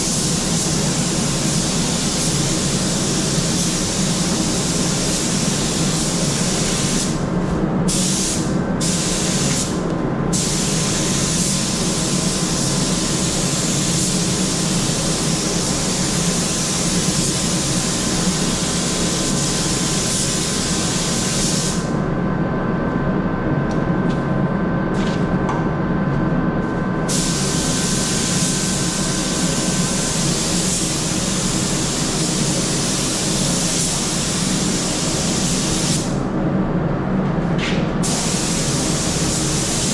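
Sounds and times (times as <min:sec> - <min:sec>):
air spray gun hissing: 0:00.0 - 0:07.2, 0:07.9 - 0:21.9, 0:27.1 - 0:36.2, 0:38.0 - 0:39.9
steady low hum: 0:00.0 - 0:39.9.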